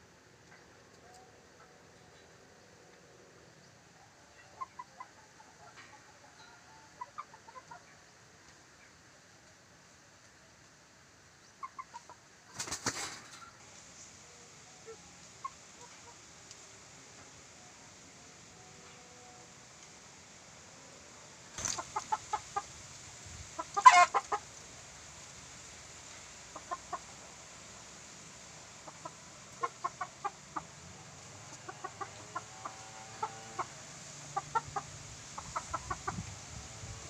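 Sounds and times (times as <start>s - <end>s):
sharp rustle: 12.5s - 13.6s.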